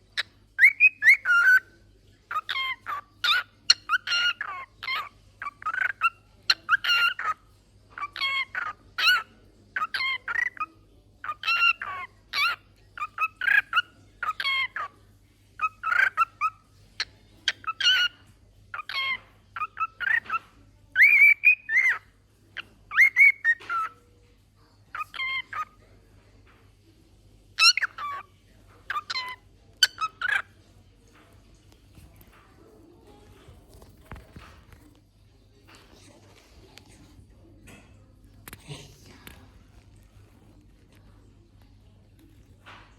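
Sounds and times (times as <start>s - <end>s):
cockatiel whistling and chirping: 0.6s - 1.6s.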